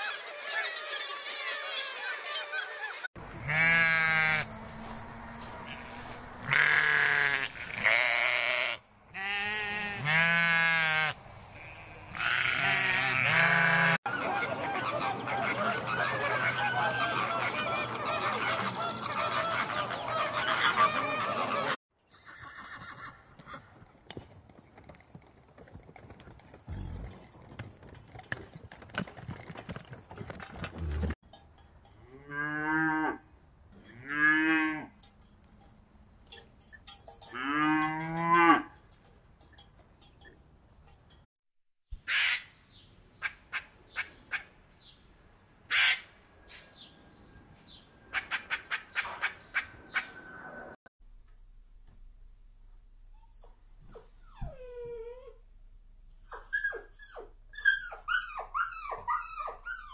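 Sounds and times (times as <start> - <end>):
sheep bleating: 3.3 - 14.0.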